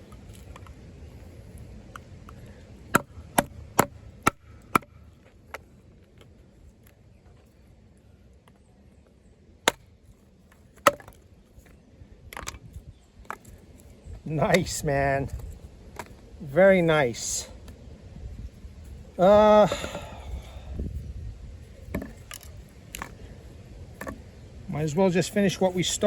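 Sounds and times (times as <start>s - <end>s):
knife chopping into wood: 3.0s - 4.9s.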